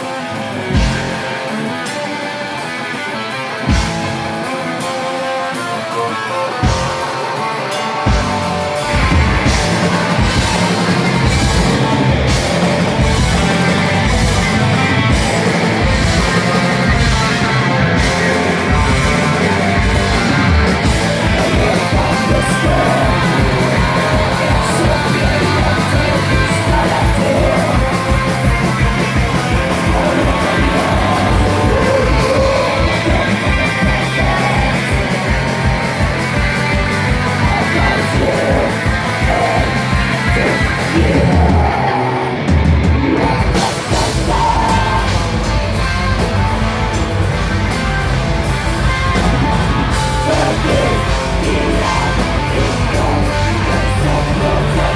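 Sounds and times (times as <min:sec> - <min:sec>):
live rock band playing: 0:00.0 - 0:54.9
person singing: 0:08.6 - 0:46.2, 0:48.8 - 0:54.9.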